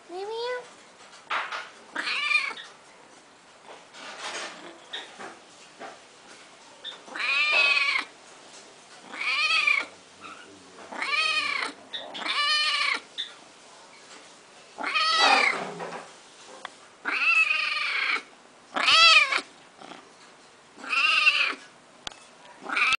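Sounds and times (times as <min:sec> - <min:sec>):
cat meowing: 0:02.0 - 0:02.6, 0:07.1 - 0:08.1, 0:09.1 - 0:09.9, 0:10.9 - 0:13.1, 0:14.8 - 0:15.8, 0:17.0 - 0:19.5, 0:20.8 - 0:21.6, 0:22.6 - 0:22.9.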